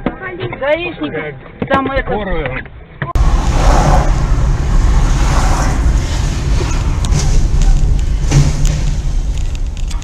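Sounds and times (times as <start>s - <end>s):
car engine and road rumble: 2.6s - 10.0s
wind noise: 3.2s - 10.0s.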